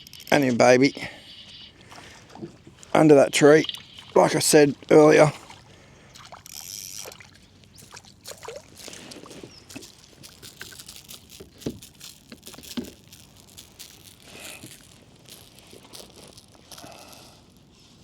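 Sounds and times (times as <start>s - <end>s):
water splashing and dribbling: 1.7s - 16.7s
small clicks and knocks: 9.3s - 16.9s.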